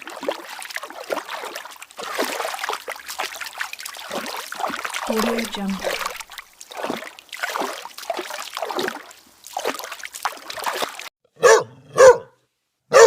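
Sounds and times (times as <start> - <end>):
water splashing: 0.0 - 11.1
dog barking: 11.4 - 13.0.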